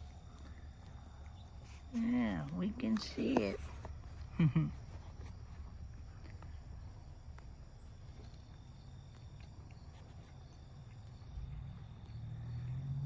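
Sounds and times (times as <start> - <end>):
faint insect drone: 0.0 - 13.0
faint ticks: 5.0 - 13.0.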